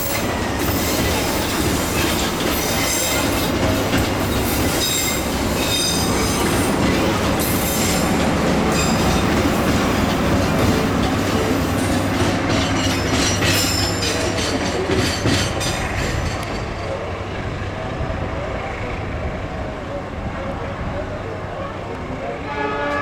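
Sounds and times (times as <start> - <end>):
wheels clacking over rail joints: 0.0 - 17.2
train wheels rumbling on rails: 0.0 - 23.0.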